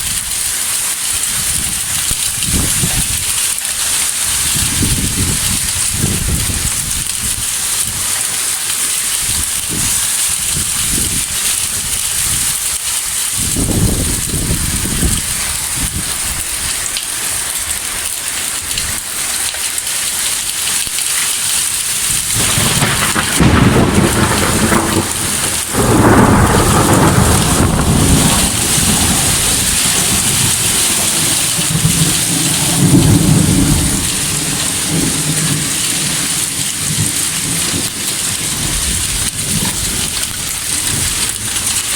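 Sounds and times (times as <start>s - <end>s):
rain hissing: 0.0s - 41.9s
low rumbles of thunder: 4.4s - 8.1s, 13.3s - 16.4s, 22.1s - 41.9s.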